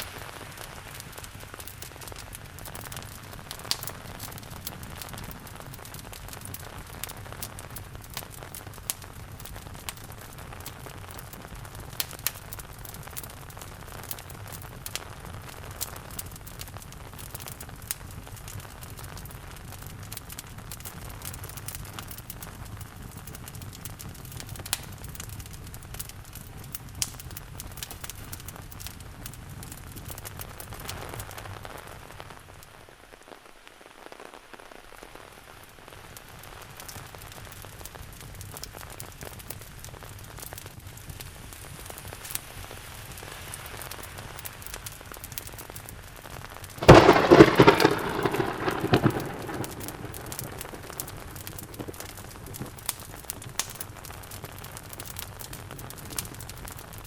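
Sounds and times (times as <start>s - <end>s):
steady rain: 0.0s - 57.0s
wood fire crackling: 0.0s - 57.0s
thunder clap: 46.8s - 52.2s.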